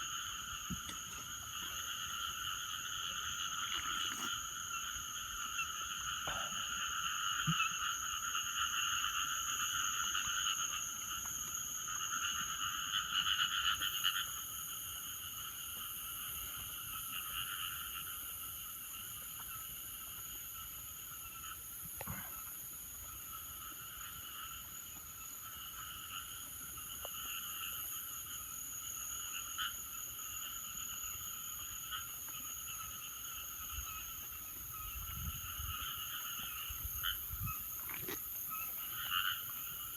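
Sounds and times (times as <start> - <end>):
chorus of frogs calling: 0.0 - 39.9
high-pitched insect trilling: 0.0 - 39.9.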